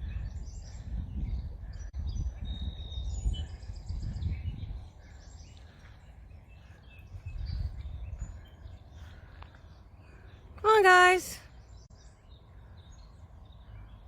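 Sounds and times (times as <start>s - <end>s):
wind buffeting microphone: 0.0s - 9.9s
small birds chirping: 0.0s - 14.0s.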